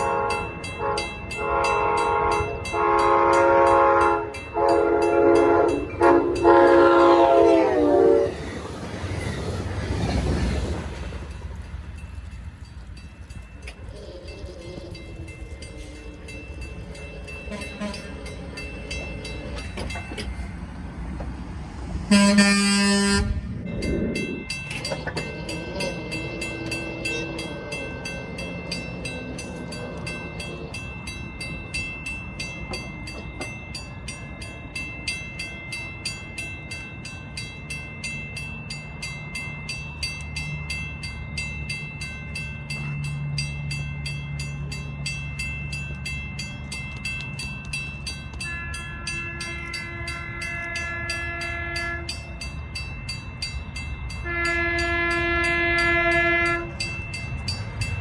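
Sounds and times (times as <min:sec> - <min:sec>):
train horn blowing: 0:00.0 - 0:08.6, 0:17.4 - 0:18.4, 0:22.0 - 0:23.6, 0:48.4 - 0:52.3, 0:54.2 - 0:56.9
diesel train engine humming: 0:00.0 - 0:58.0
rail noise: 0:00.0 - 0:58.0.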